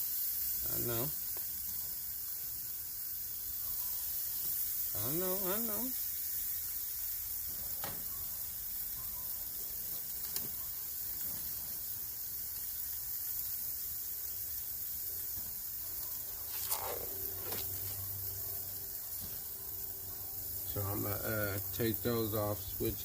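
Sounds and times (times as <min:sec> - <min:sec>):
chicken sizzling on a grill: 0:00.0 - 0:23.0.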